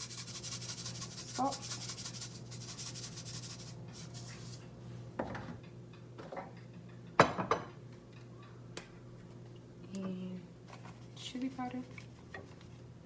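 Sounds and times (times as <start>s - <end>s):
steady low hum: 0.0s - 6.1s.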